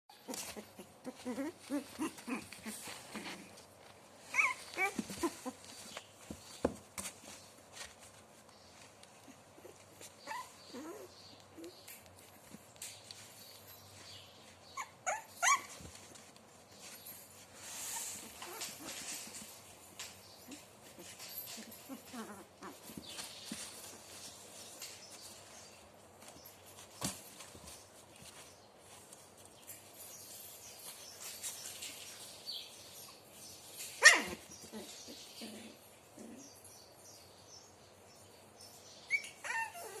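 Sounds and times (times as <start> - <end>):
soft low puppy sounds: 0.1 - 32.0, 34.0 - 37.0
rustle: 0.2 - 40.0
puppies whimpering: 4.2 - 5.8, 9.6 - 11.7, 39.1 - 40.0
puppy yelping: 4.3 - 5.6, 14.8 - 15.7, 34.0 - 34.9, 39.1 - 40.0.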